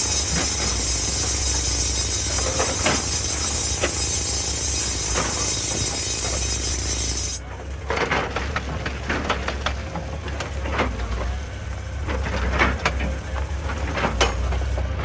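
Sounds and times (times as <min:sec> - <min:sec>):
loud hiss: 0:00.0 - 0:07.4
rocks being scraped: 0:00.0 - 0:07.4
excavator engine humming: 0:00.0 - 0:15.0.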